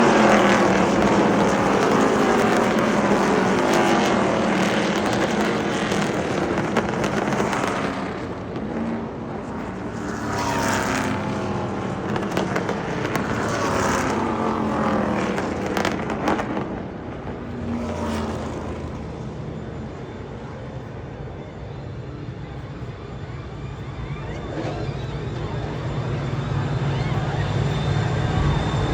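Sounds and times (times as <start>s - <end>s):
race truck engines passing: 0.0s - 21.1s.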